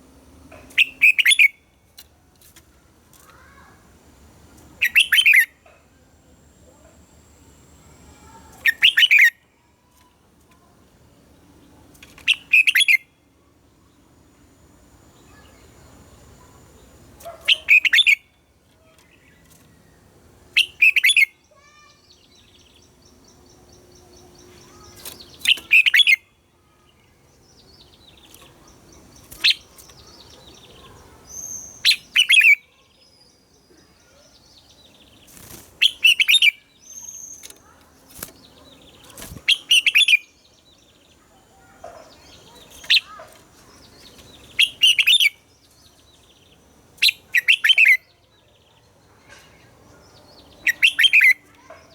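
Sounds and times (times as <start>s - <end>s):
faint bird chirps: 0.6s - 2.0s, 4.8s - 51.9s
bulbul singing: 4.8s - 5.8s, 7.4s - 9.5s, 12.1s - 13.2s, 13.8s - 19.4s, 20.5s - 26.4s, 41.9s - 51.9s.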